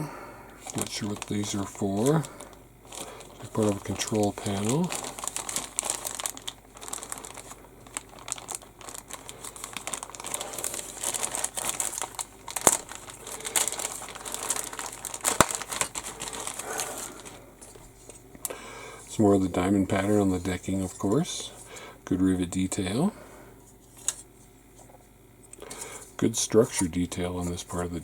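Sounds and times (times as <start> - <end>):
plastic bag crinkling: 0.6 - 21.8.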